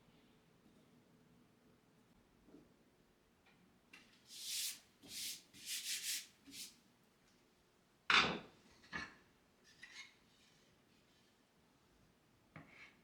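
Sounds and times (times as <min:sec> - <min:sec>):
short scrapes: 0:04.3 - 0:06.7.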